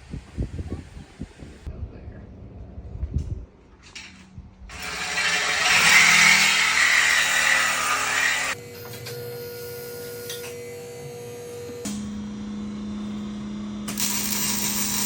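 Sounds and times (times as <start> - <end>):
power tool running: 4.7 - 15.0
steady hum: 8.5 - 15.0.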